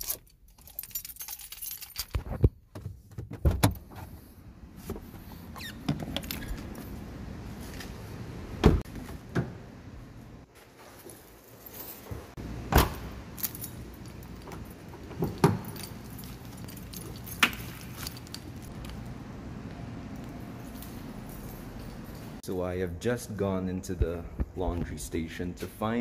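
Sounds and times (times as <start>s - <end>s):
keys jangling: 0.0s - 2.3s, 10.8s - 12.4s, 13.2s - 19.1s, 20.0s - 22.4s
low background hum: 3.8s - 26.0s.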